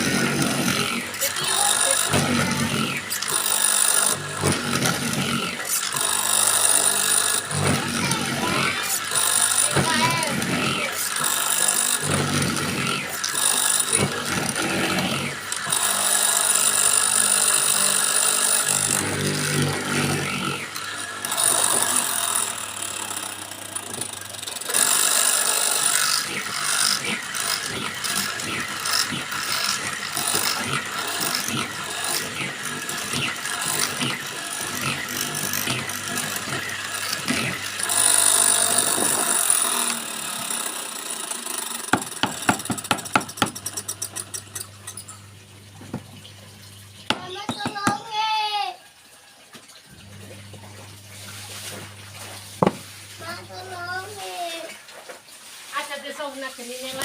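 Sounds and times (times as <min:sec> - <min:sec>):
high-pitched cutting noise: 0:00.0 - 0:45.3
mortising machine cutting wood: 0:00.0 - 0:48.3, 0:49.9 - 0:54.7.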